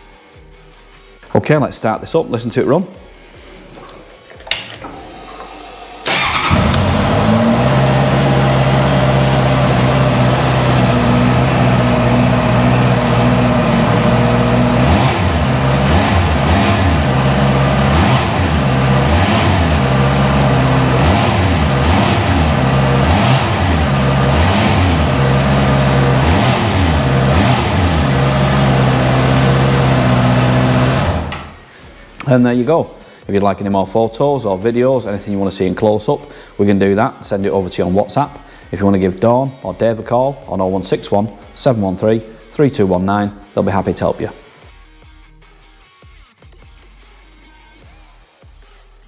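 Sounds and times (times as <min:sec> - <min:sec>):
motorcycle engine starting: 0:04.1 - 0:32.3
motorcycle engine idling: 0:06.0 - 0:32.2
motorcycle engine revving in blips: 0:06.0 - 0:32.2.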